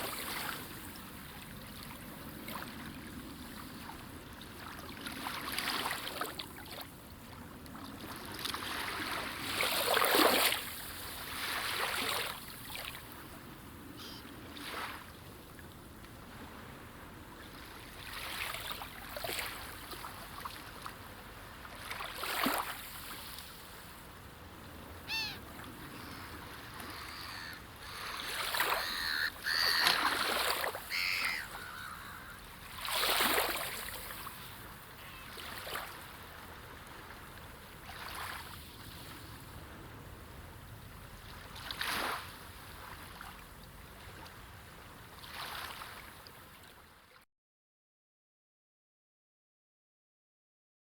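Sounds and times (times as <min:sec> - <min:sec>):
sea waves washing in: 0:07.8 - 0:46.1
bird calling: 0:14.0 - 0:14.3, 0:25.0 - 0:32.5.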